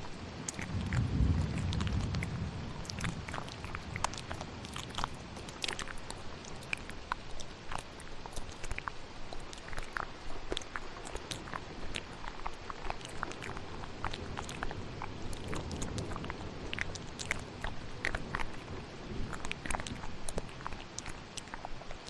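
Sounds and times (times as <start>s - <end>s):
low rumble: 0.0s - 7.8s
rain hiss: 0.0s - 22.0s
wet mouth clicks and smacks: 0.0s - 22.0s.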